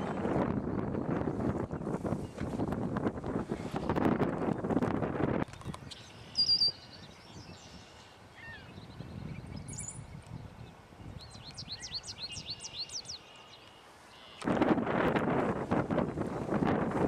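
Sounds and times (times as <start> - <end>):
wild birds calling: 5.8 - 10.1, 10.7 - 14.5
high chirps: 5.9 - 6.9.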